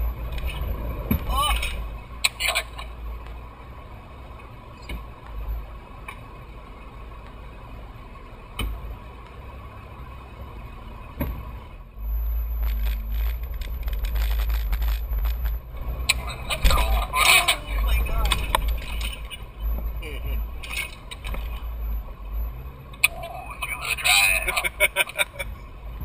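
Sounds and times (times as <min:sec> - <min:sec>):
vehicle engine rumble: 0:00.0 - 0:26.0
knocks and rattles: 0:12.5 - 0:15.6.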